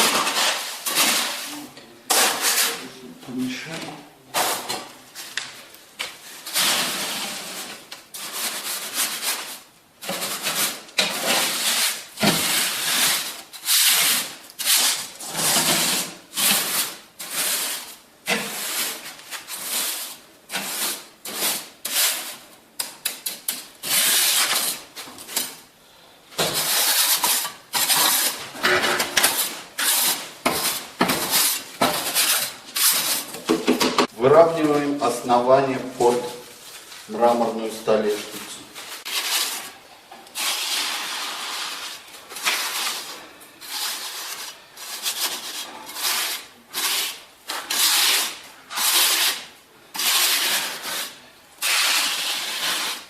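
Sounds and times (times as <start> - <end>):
trowel scraping wet mortar: 26.4 - 33.4, 39.0 - 53.0.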